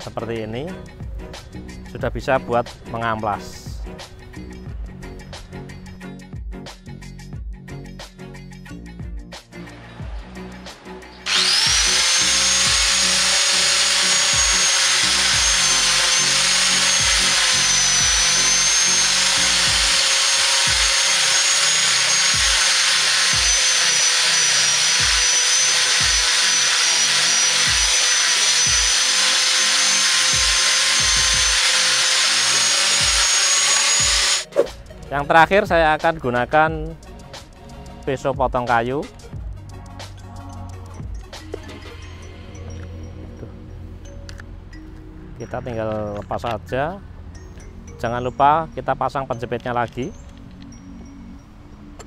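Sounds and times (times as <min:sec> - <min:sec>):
angle grinder motor whine: 0:11.2 - 0:34.5
sanding disc on wooden plank: 0:11.2 - 0:34.5.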